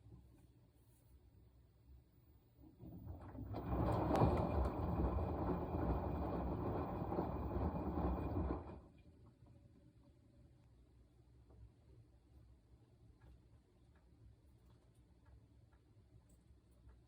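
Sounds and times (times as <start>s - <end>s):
washing machine drum swishing: 2.6s - 9.0s.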